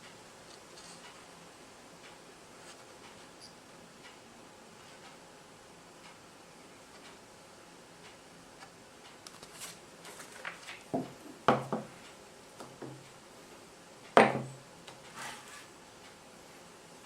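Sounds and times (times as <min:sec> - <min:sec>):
hard objects knocking and clattering: 0:10.9 - 0:11.9.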